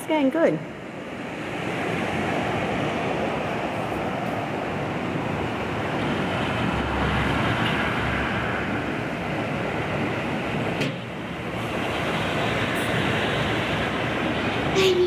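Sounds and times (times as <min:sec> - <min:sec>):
heavy rain falling: 0:01.8 - 0:15.0.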